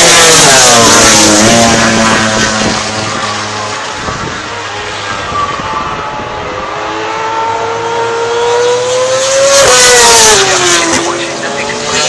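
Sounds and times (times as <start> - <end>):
racing motorcycle passing: 0.0 - 12.0.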